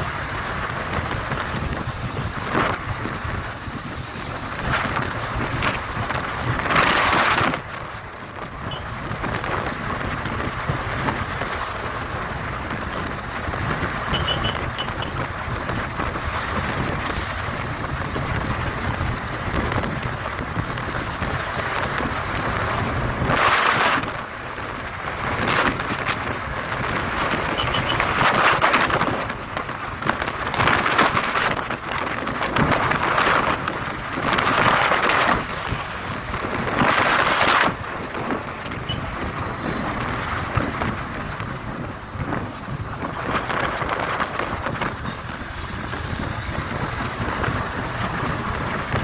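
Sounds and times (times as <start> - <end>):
motorcycle engine and road rumble: 0.0 - 49.0
wind rushing over microphone: 0.0 - 49.0
short high beeps: 14.2 - 14.6.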